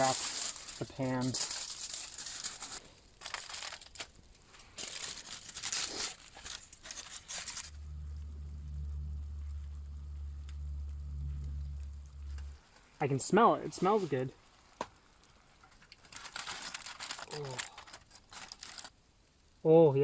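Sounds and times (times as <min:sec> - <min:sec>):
aluminium foil crinkling and tearing: 0:00.0 - 0:07.8, 0:13.8 - 0:19.0
steady low hum: 0:07.5 - 0:15.4.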